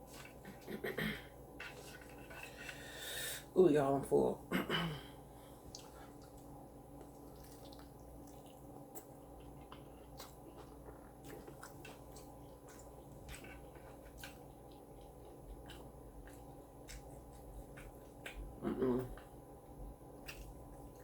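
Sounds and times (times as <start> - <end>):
steady low hum: 0.0 - 21.0
person chewing: 5.5 - 21.0.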